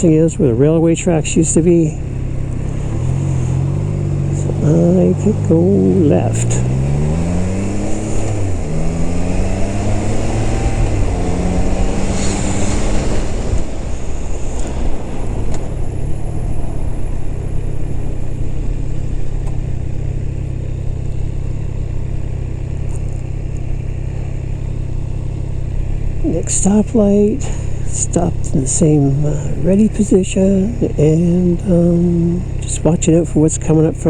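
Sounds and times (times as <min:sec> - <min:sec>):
motorcycle engine accelerating: 0:00.0 - 0:34.0
wind noise: 0:01.2 - 0:20.1.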